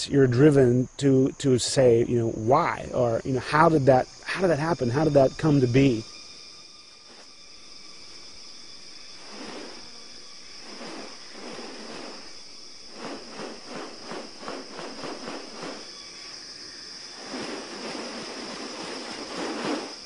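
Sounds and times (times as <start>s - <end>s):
high-pitched insect buzz: 0.1s - 20.0s
rasping noise: 9.2s - 10.0s, 10.6s - 15.9s
quick pulses: 10.6s - 16.0s.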